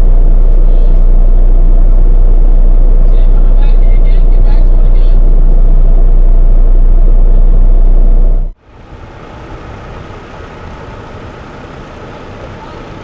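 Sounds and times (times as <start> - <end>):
truck engine deep rumble: 0.0 - 8.6
quiet vehicle hum: 0.0 - 13.0.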